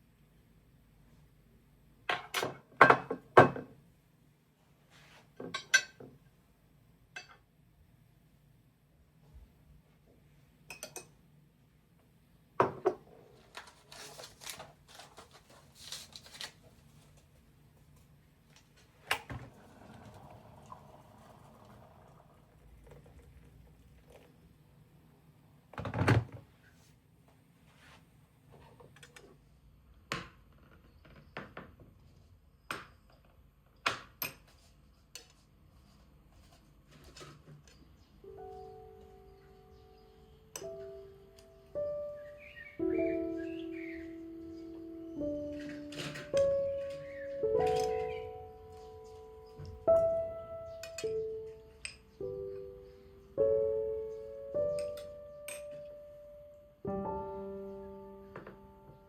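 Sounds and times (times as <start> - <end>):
kitchenware clinking: 10.7 - 11.2.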